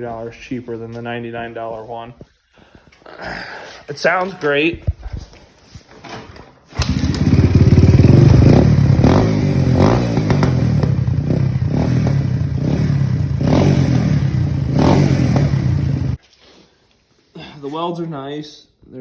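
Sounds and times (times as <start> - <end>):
dirt bike engine idling: 6.8 - 16.2
engine throttle blips: 6.8 - 16.2.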